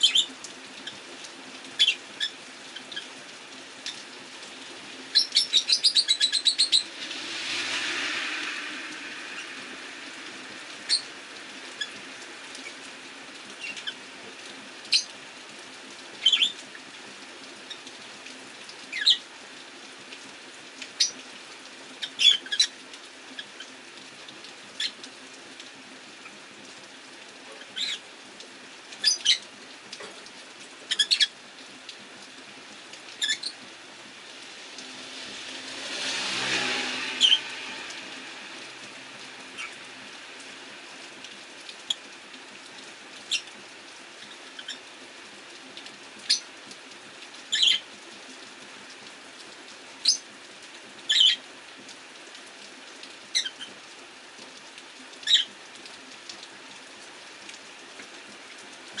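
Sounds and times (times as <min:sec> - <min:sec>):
rain hiss: 0:00.0 - 0:59.0
broad swell of noise: 0:06.8 - 0:11.8, 0:35.0 - 0:39.2.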